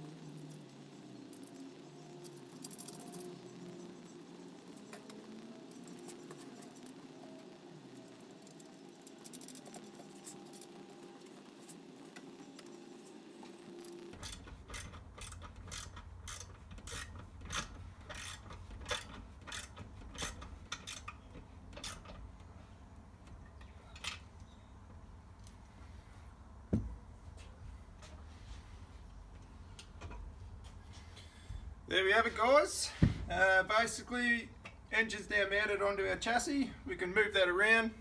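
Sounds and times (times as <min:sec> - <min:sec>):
ratchet wrench clicking: 0:14.2 - 0:21.2.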